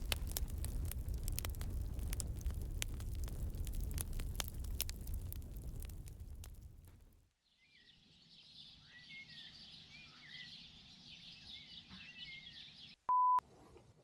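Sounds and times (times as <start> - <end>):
small birds chirping: 7.5 - 13.0.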